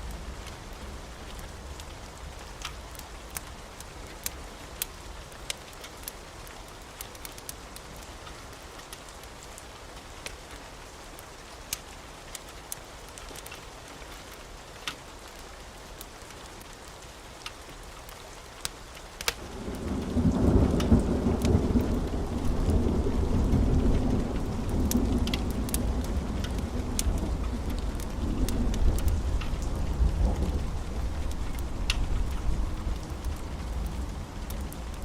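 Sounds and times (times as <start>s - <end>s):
steady rain: 0.0s - 35.0s
thunder rumbling: 19.4s - 35.0s.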